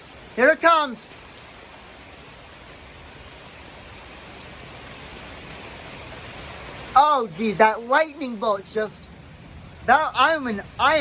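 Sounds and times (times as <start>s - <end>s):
rain hissing: 0.0s - 11.0s.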